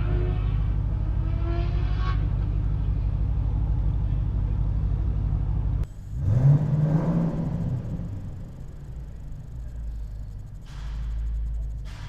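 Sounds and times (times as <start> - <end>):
car engine idling: 0.2 - 12.0.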